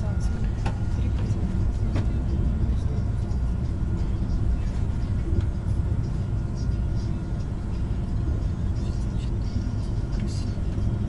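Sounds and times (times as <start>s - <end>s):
train rumble inside carriage: 0.0s - 11.0s.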